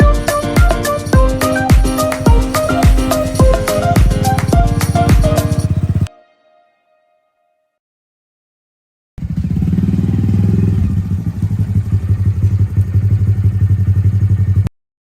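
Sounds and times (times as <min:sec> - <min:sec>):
motorcycle engine running: 0:02.0 - 0:06.1, 0:09.2 - 0:14.7.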